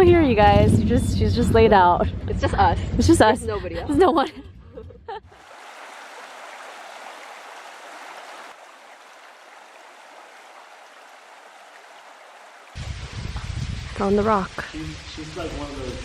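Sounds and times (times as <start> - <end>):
stream water running: 5.4 - 16.0.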